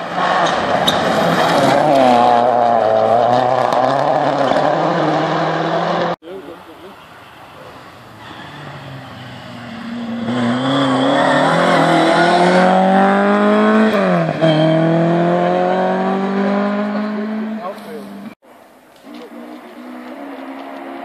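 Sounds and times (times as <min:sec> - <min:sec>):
rally car engine accelerating: 0:00.0 - 0:06.2, 0:08.2 - 0:18.4.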